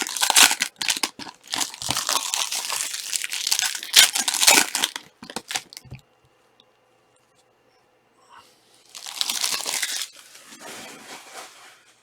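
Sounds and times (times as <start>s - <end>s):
card pack wrappers crinkling: 0.0s - 6.0s, 8.9s - 10.4s.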